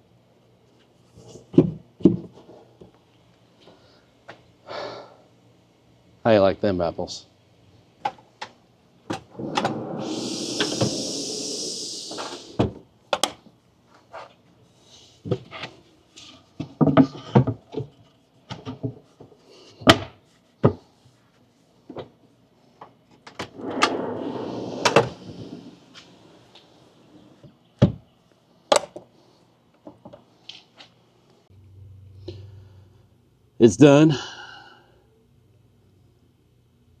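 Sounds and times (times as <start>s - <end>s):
drawers sliding on runners: 9.1s - 12.7s, 23.4s - 27.4s.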